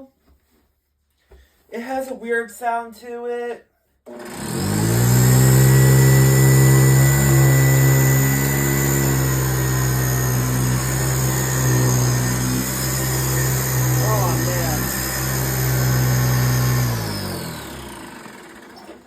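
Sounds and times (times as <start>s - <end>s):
upright vacuum motor running: 4.1s - 19.0s
brush roll grinding: 4.4s - 19.0s.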